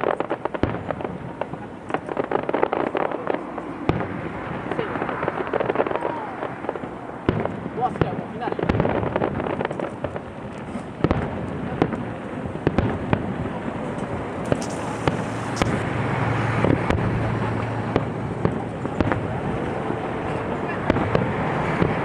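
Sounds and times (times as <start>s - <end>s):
fireworks bangs and crackles: 0.0s - 22.0s
steady noisy background: 13.6s - 22.0s.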